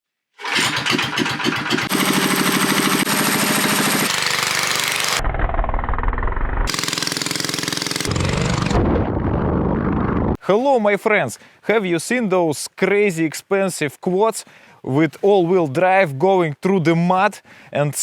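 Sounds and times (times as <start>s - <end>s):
small motorcycle engines revving: 0.4s - 5.2s, 6.7s - 8.9s.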